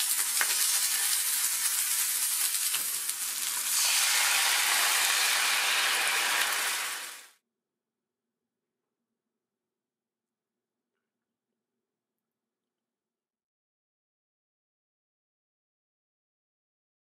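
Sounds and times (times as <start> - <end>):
sauce poured into hot pan: 0.0 - 7.3
chicken sizzling in hot oil: 0.0 - 7.4.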